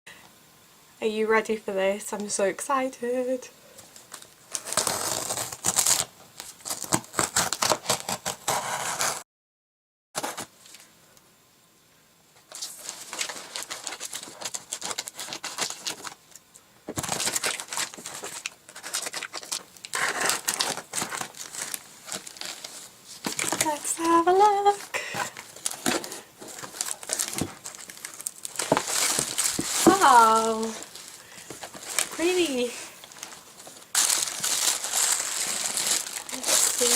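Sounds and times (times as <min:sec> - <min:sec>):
packaging tearing and crinkling: 0:04.1 - 0:09.2, 0:12.5 - 0:36.9.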